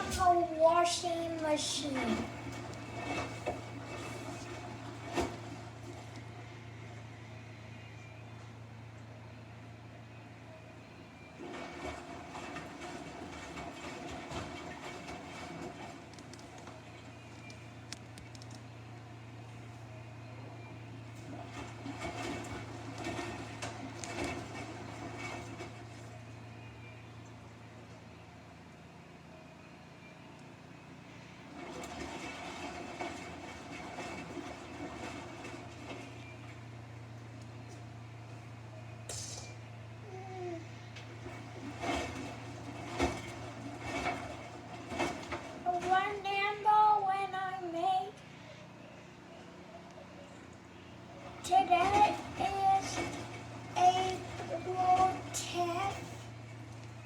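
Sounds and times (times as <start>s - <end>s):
drum rumbling with clattering clicks: 0.0s - 6.3s, 11.4s - 18.7s, 21.1s - 26.1s, 31.5s - 37.8s, 41.0s - 46.9s, 51.2s - 57.0s
washing machine humming: 0.0s - 57.0s.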